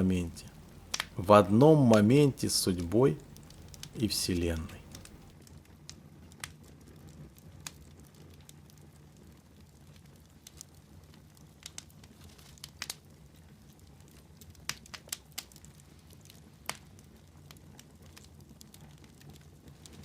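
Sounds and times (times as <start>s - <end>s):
low steady hum: 0.0s - 5.3s
wood fire crackling and popping: 0.0s - 20.0s.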